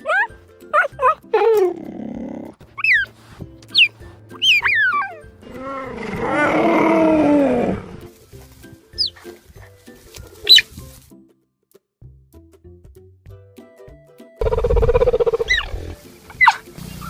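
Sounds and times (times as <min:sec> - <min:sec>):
cheetah chirping: 0:02.8 - 0:05.4, 0:09.0 - 0:09.2, 0:10.4 - 0:10.8, 0:14.4 - 0:16.7.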